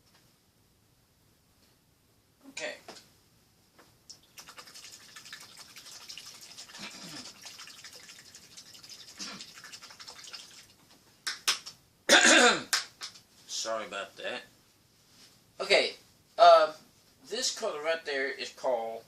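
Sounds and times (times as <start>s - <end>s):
person coughing: 12.1s - 12.7s.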